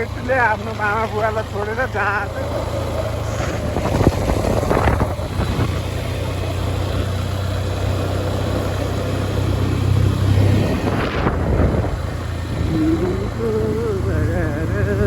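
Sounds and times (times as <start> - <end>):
road noise: 0.0 - 15.0
truck engine droning: 0.0 - 15.0.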